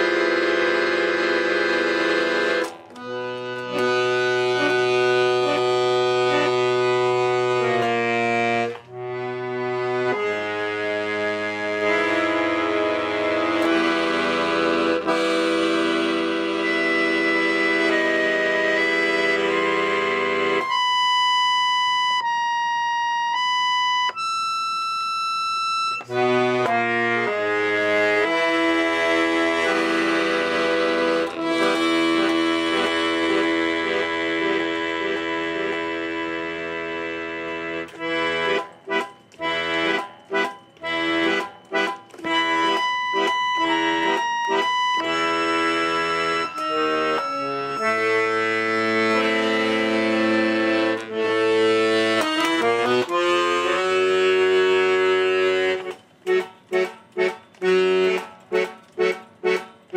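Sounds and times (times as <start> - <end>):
accordion chords: 0.0 - 59.9.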